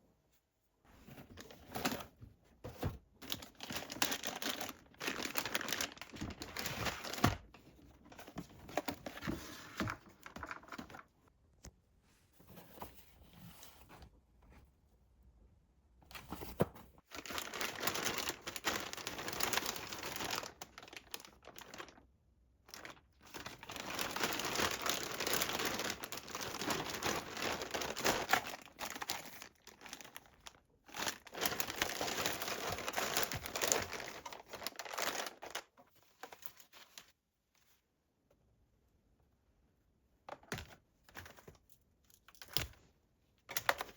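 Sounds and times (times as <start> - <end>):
crinkly material crumpling: 3.1 - 11.2, 16.4 - 37.8.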